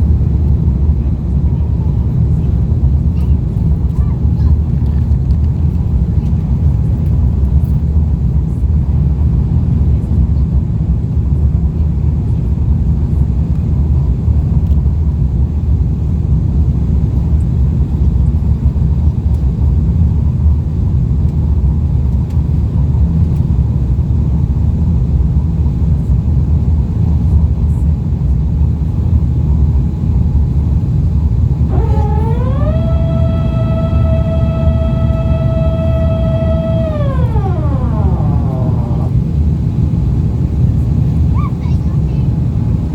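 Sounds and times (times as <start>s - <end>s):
rising electronic tone: 31.7s - 39.2s
airplane cabin engine rumble: 31.7s - 39.7s.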